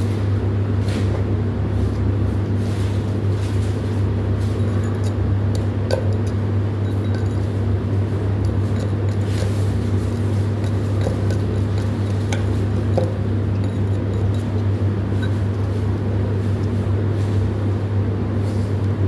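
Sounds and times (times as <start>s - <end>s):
light clicks and clinks: 4.6s - 7.6s.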